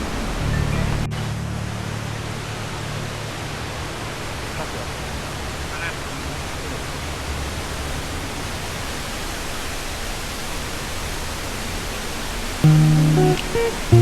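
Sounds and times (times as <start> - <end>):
waterfall rushing: 12.7 - 14.0.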